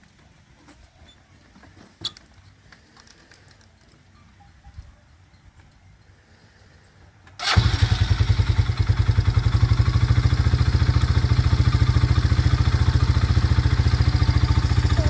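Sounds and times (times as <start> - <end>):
atv engine starting and idling: 7.3 - 15.0.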